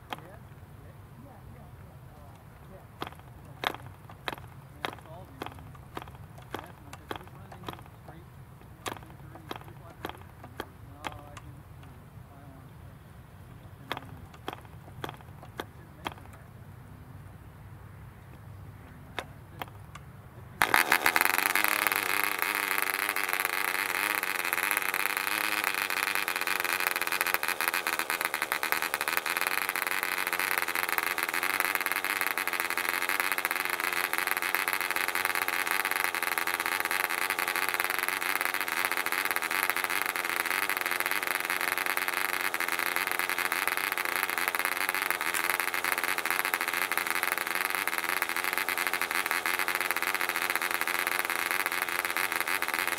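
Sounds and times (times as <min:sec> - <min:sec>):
model engine running high-pitched: 0:03.0 - 0:11.5, 0:13.9 - 0:16.4, 0:20.6 - 0:52.9.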